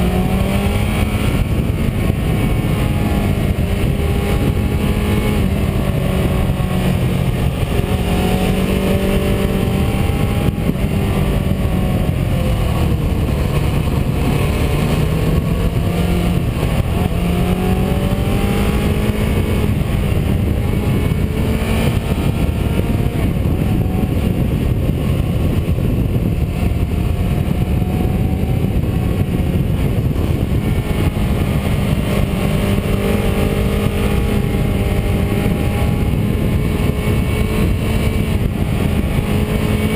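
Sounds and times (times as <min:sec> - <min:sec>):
car engine revving: 0:00.0 - 0:39.9
road and wind noise: 0:00.0 - 0:39.9.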